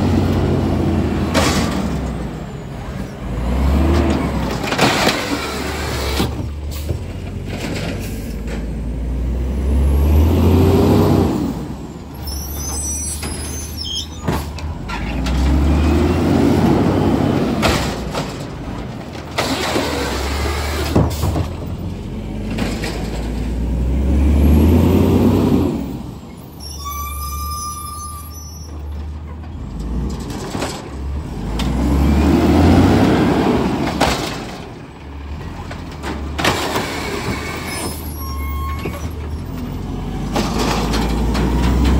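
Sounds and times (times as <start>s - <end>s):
garbage truck diesel engine revving: 0.0s - 11.8s, 14.6s - 21.0s, 21.6s - 26.1s, 31.0s - 34.6s.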